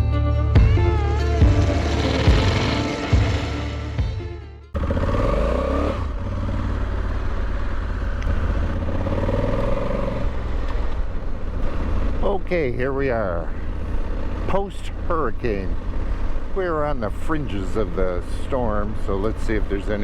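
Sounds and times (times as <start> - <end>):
music: 0.0 - 4.8
motorcycle engine accelerating: 0.6 - 20.0.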